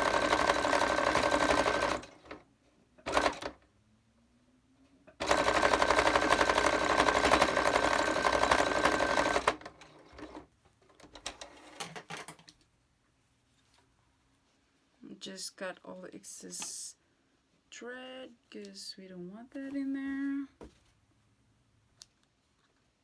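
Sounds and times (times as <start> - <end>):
electric sewing machine stitching: 0.0 - 2.4, 3.0 - 3.6, 5.2 - 10.4.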